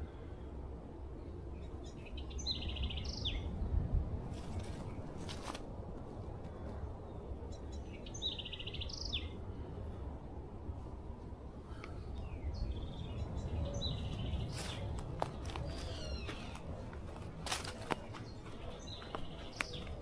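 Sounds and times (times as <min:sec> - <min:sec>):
small birds trilling: 0:11.7 - 0:20.0.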